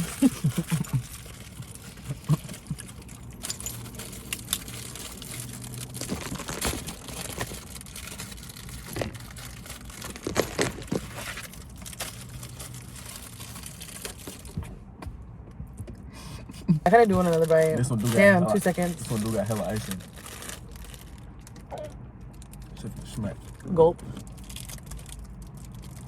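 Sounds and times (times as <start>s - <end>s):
chewing clicks and crackles: 0.0s - 14.6s, 19.8s - 23.6s, 24.2s - 26.0s
plastic wrapper crinkling: 0.0s - 14.6s, 17.0s - 21.6s, 24.2s - 26.0s
low steady hum: 0.0s - 26.0s.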